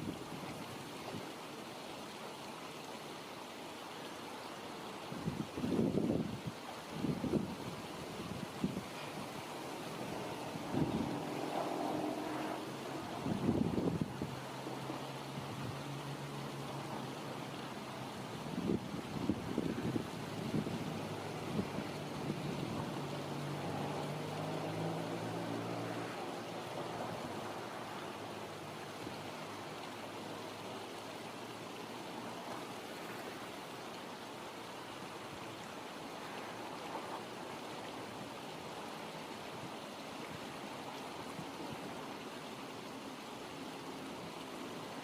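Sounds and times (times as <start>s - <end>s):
river water rushing: 0.0s - 45.0s.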